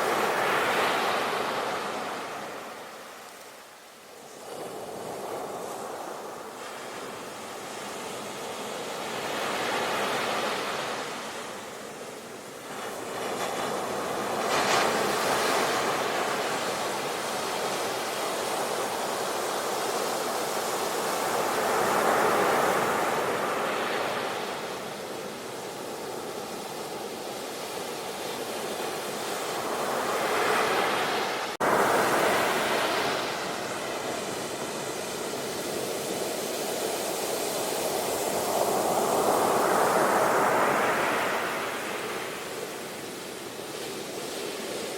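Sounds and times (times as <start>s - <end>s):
ocean waves washing in: 0.0s - 44.9s.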